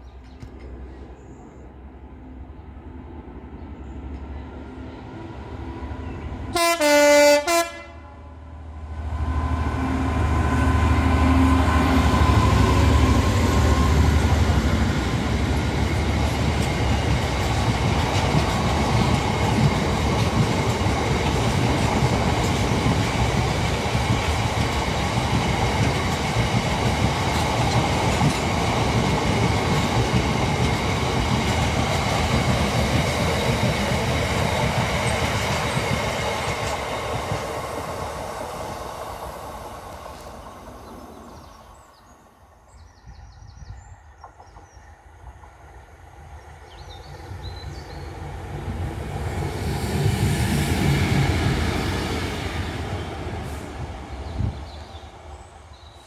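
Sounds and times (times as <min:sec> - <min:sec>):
two-tone locomotive horn: 0:06.5 - 0:08.4.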